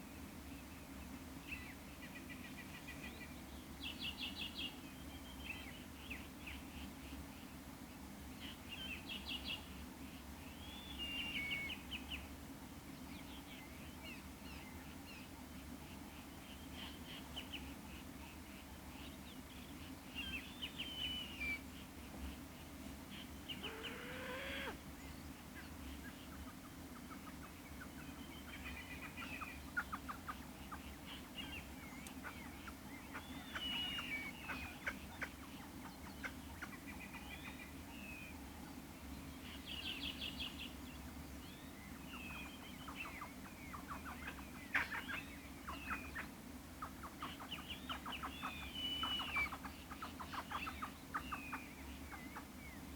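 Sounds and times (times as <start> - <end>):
birds calling: 23.1 - 25.0.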